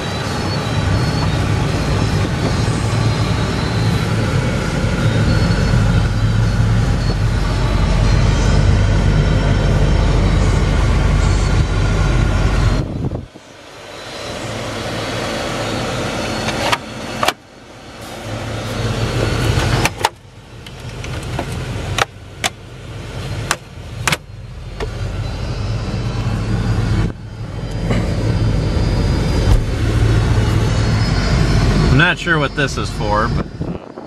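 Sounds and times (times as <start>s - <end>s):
truck engine idling: 0.0s - 34.0s
power window motor whirring: 29.2s - 30.0s.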